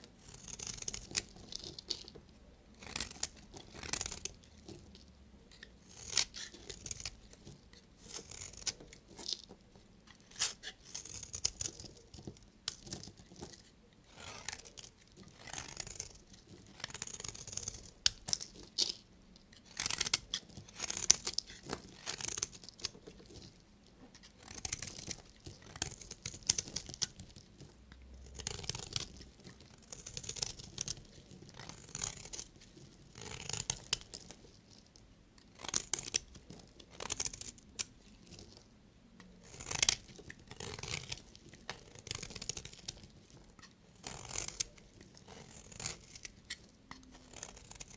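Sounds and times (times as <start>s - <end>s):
knife cutting through soap: 0.2s - 2.2s, 2.8s - 4.8s, 5.5s - 27.4s, 39.2s - 47.9s.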